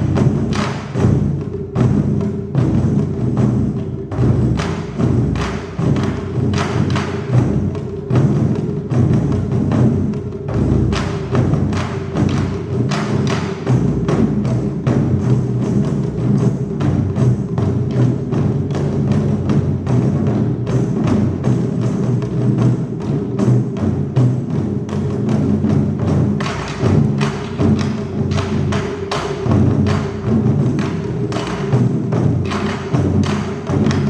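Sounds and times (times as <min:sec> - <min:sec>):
rapid drumming ensemble: 0:00.0 - 0:34.0.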